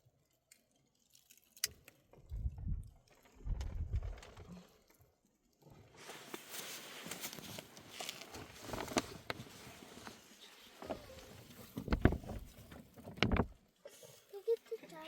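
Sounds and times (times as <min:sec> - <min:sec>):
rustling: 0:05.8 - 0:14.4.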